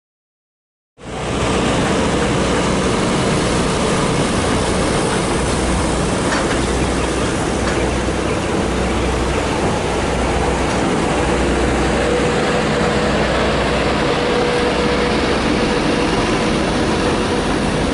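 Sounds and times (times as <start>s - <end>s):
locomotive engine hum: 1.0s - 17.9s.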